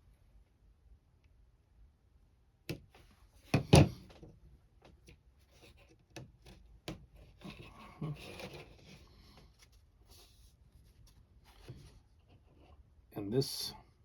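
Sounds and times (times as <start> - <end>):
parts knocking on work surface: 3.5 - 4.1.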